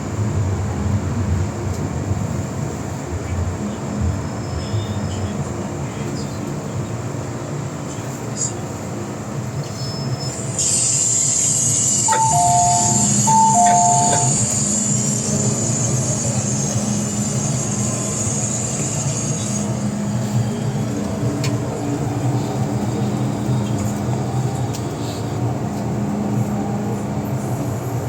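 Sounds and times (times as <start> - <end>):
electric metro train rumble: 0.0 - 28.0
loud hiss: 10.6 - 20.8
falling two-note chime: 12.1 - 14.6.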